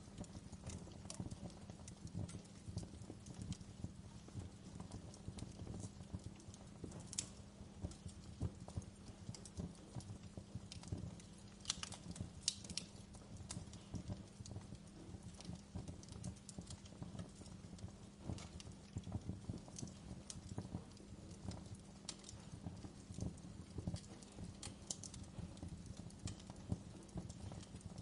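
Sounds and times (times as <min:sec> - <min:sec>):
low rumble of fire burning: 0:00.0 - 0:28.0
wood fire crackles and pops: 0:00.0 - 0:28.0.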